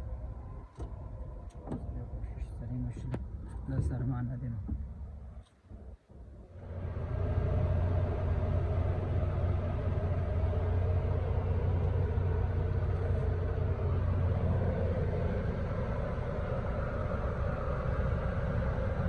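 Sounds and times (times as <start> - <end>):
heavy truck running: 6.5 - 19.0.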